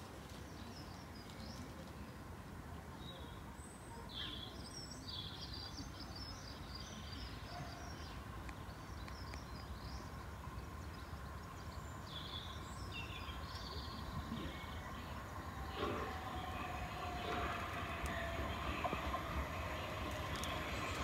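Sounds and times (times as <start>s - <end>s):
birds chirping: 4.2s - 21.0s
train wheels rumbling on rails: 7.1s - 21.0s
train motors humming: 7.3s - 21.0s.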